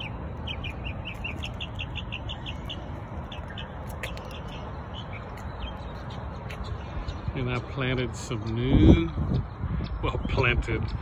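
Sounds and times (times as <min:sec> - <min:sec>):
songbird chirping: 0:00.0 - 0:08.1.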